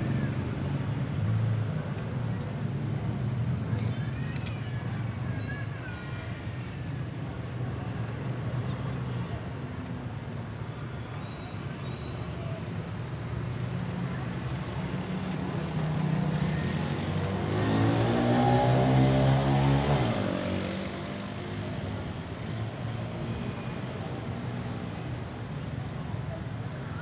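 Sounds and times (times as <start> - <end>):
car engine idling and revving: 16.6 - 21.8.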